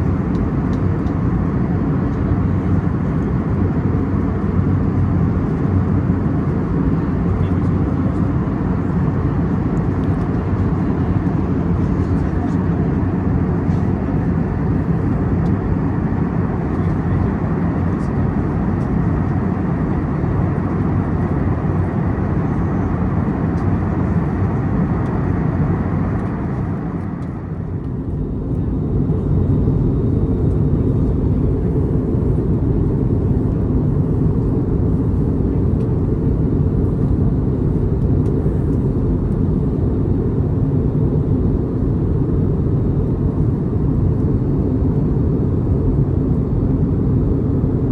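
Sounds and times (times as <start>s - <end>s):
engine rumble: 0.0s - 47.9s
airplane cabin air rush: 22.6s - 40.3s.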